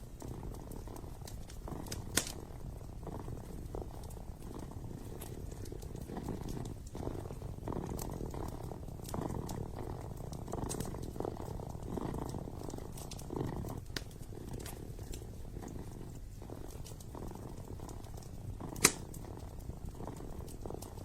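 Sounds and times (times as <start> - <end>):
fireplace crackling: 0.0 - 21.0
kitten purring: 0.0 - 21.0.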